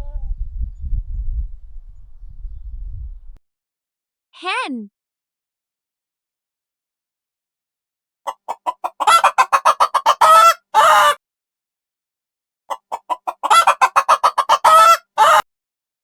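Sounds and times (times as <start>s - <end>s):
hen cackling: 8.3s - 11.2s, 12.7s - 15.4s.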